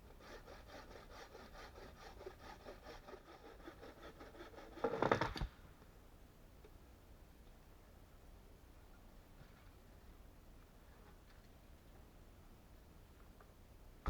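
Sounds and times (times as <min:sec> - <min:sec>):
hand tool rasping wood: 0:00.2 - 0:05.2.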